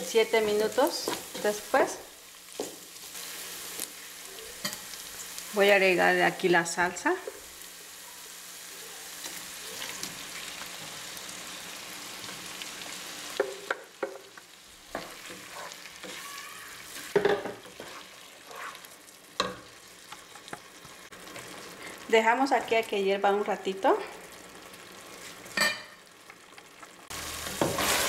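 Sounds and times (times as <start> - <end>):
sauce sizzling in a pot: 0.0 - 28.0
wooden spatula scraping a metal pot: 15.0 - 16.2, 16.8 - 18.9.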